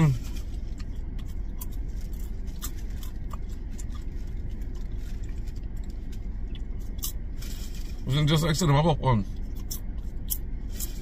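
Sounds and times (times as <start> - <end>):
plastic snack bag crinkling: 0.0 - 8.2
popcorn being chewed: 0.0 - 8.6, 9.2 - 11.0
car cabin hum: 0.0 - 11.0.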